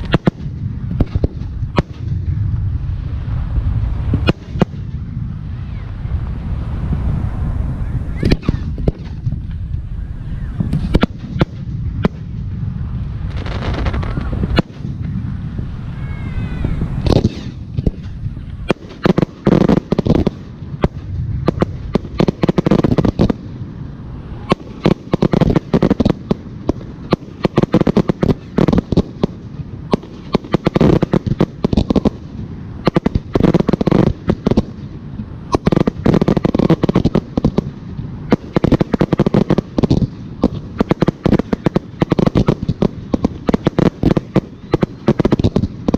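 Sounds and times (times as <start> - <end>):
fireworks bursting with bangs and crackles: 0.0 - 45.9
rumbling: 0.0 - 45.9
rising whistle: 9.9 - 10.7.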